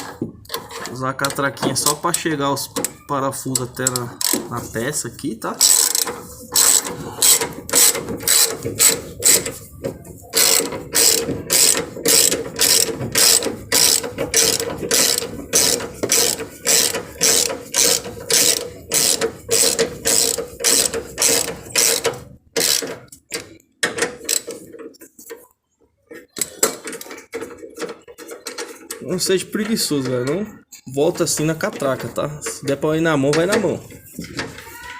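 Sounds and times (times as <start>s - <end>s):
ratchet wrench clicking: 3.8s - 4.4s, 5.6s - 9.6s, 10.3s - 23.6s.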